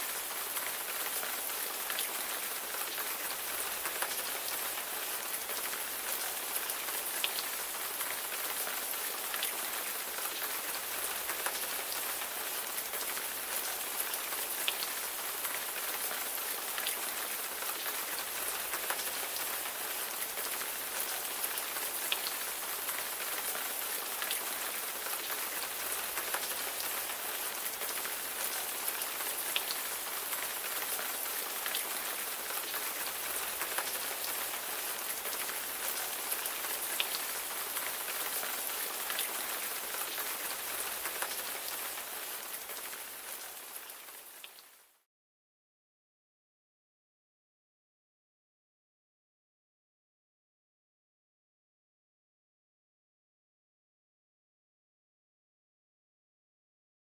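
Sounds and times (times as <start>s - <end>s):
rain pattering on a surface: 0.0s - 45.1s.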